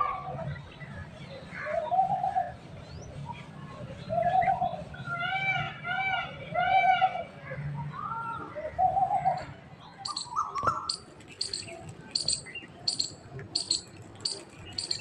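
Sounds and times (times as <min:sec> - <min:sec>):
bird calling: 0:08.8 - 0:15.0.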